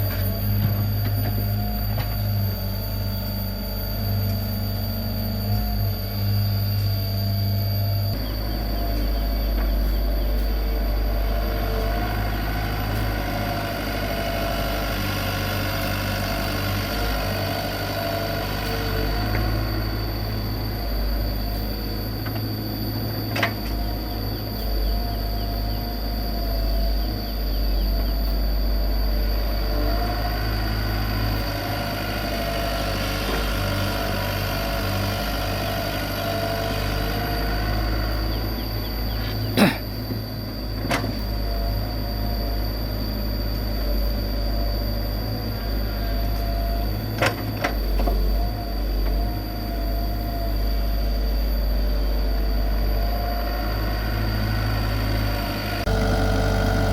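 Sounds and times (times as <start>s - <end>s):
excavator diesel engine running: 0.0s - 28.2s, 53.6s - 56.9s
high whine: 0.0s - 32.5s, 55.7s - 56.9s.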